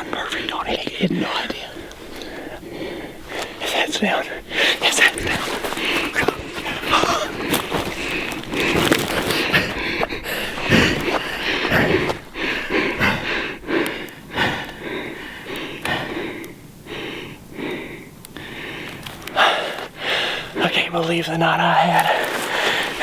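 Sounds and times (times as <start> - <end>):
man sniffling and gasping: 0.0 - 20.6, 22.0 - 23.0
man breathing heavily: 0.0 - 23.0.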